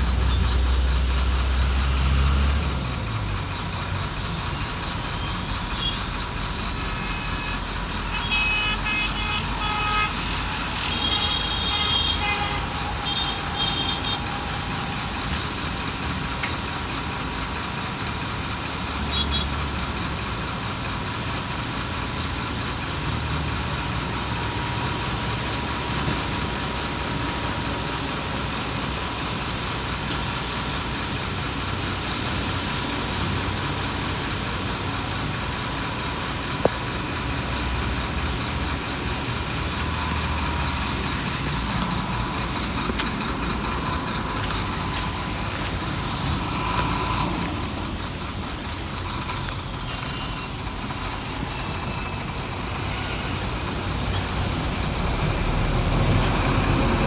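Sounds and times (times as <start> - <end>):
diesel earthmoving machinery rumbling: 0.0 - 57.0.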